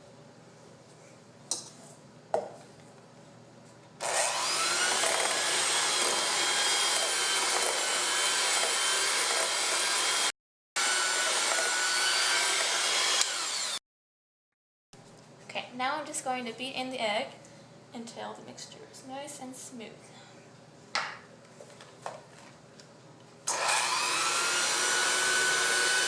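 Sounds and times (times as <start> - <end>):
electric mixer running: 4.0 - 13.8, 23.5 - 26.0.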